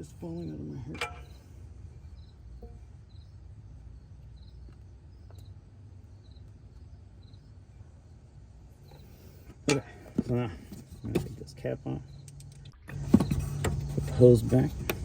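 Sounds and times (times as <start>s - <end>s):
cricket chirping: 0.0s - 9.9s, 10.8s - 14.2s
low outdoor rumble: 0.0s - 15.0s
faint clicks of parts handled: 12.2s - 15.0s.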